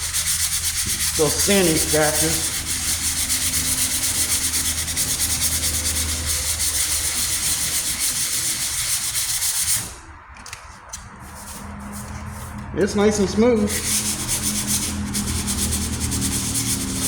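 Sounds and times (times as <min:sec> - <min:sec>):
sandpaper scratching on steel: 0:00.0 - 0:10.1, 0:11.0 - 0:17.0.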